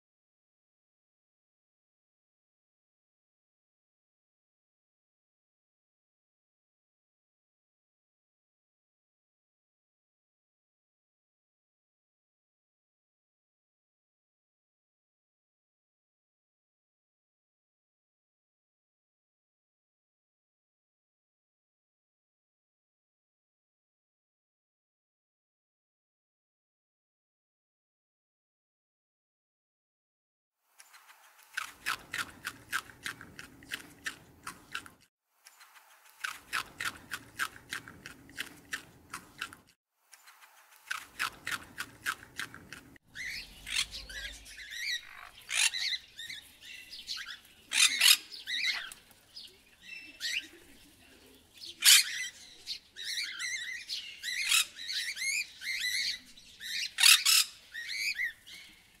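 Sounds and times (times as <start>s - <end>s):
bird squawks and chirps: 43.1s - 49.0s, 49.7s - 51.0s, 51.6s - 58.9s.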